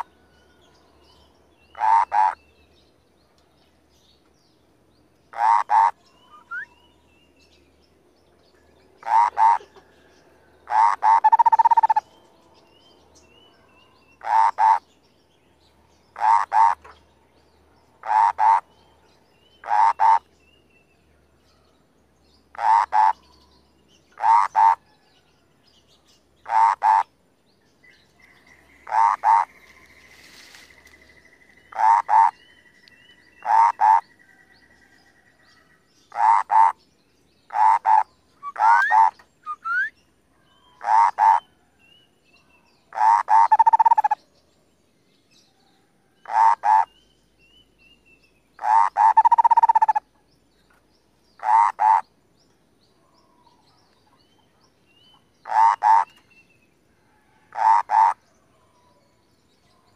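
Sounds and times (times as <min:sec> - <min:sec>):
bird harsh rattling croaks: 0:01.8 - 0:02.4, 0:05.3 - 0:06.0, 0:09.0 - 0:09.7, 0:10.7 - 0:12.0, 0:14.2 - 0:14.8, 0:16.2 - 0:16.9, 0:18.0 - 0:18.6, 0:19.6 - 0:20.2, 0:22.5 - 0:23.2, 0:24.2 - 0:24.8, 0:26.4 - 0:27.1, 0:28.8 - 0:29.6, 0:31.7 - 0:32.4, 0:33.4 - 0:34.0, 0:36.1 - 0:36.8, 0:37.5 - 0:39.3, 0:40.8 - 0:41.4, 0:42.9 - 0:44.2, 0:46.3 - 0:46.9, 0:48.6 - 0:50.0, 0:51.4 - 0:52.1, 0:55.4 - 0:56.2, 0:57.5 - 0:58.2.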